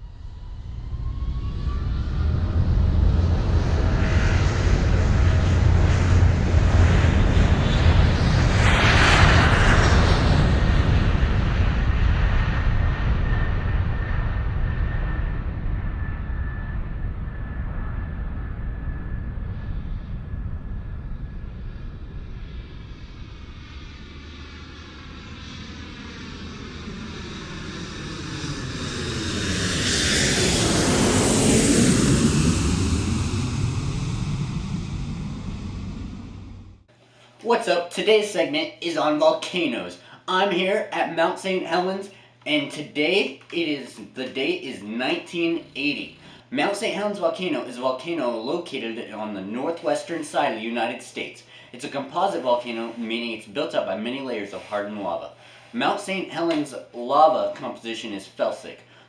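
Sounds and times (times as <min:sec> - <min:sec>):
deep rumbling roar: 0:00.1 - 0:36.9.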